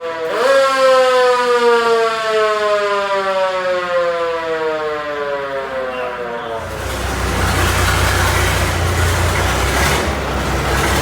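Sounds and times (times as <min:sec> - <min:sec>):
siren winding up and down: 0:00.0 - 0:06.8.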